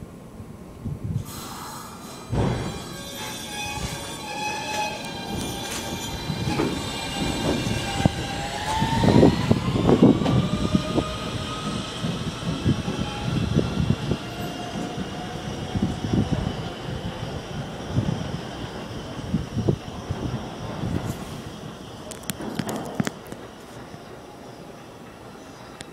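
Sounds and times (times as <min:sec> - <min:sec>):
subway train motors whining: 0:00.0 - 0:25.9
train wheels clattering over rail joints: 0:02.3 - 0:15.2.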